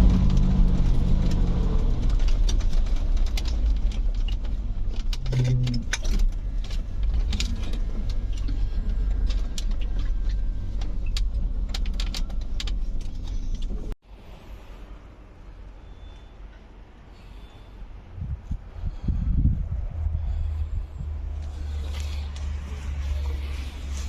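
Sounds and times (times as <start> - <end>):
vehicle clicks and rattles: 0.0 - 14.0
moving vehicle rumble: 0.0 - 24.0.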